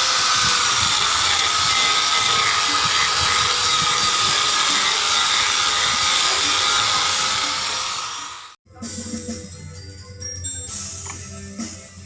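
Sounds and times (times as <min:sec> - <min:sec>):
electric power tool whining on wood: 0:00.0 - 0:08.6.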